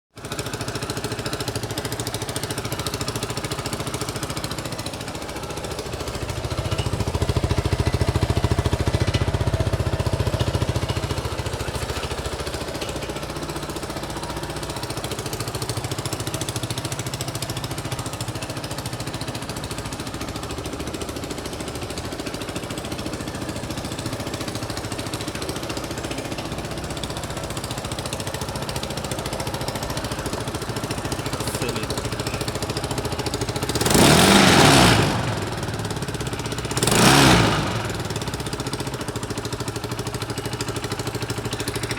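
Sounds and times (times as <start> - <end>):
motorcycle engine running: 0.2 - 41.9.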